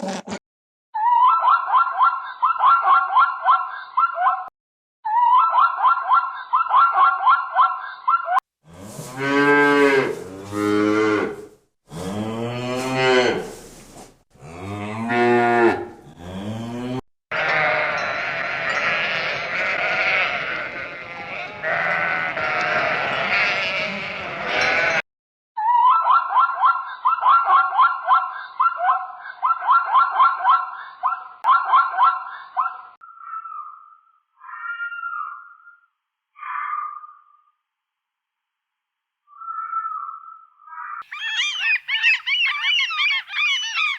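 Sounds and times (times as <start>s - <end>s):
livestock bleating: 17.3s - 25.0s
fast pulsing high animal call: 41.0s - 43.9s.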